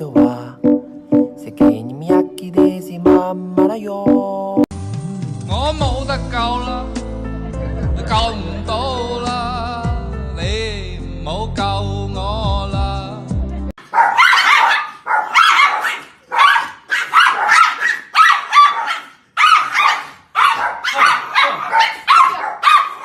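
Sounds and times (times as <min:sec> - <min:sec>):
music: 0:00.0 - 0:13.8
dog barking: 0:13.8 - 0:23.0.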